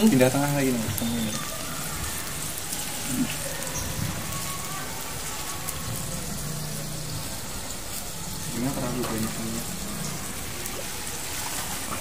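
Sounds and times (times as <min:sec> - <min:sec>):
meat sizzling on grill pan: 0:00.0 - 0:12.0.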